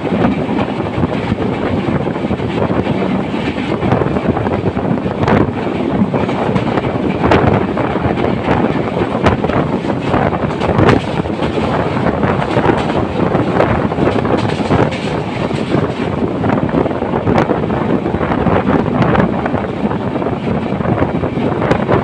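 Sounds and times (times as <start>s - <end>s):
train knocks: 0.0s - 17.5s
train rumbling and rattling: 0.0s - 22.0s
wind buffeting microphone: 0.0s - 22.0s.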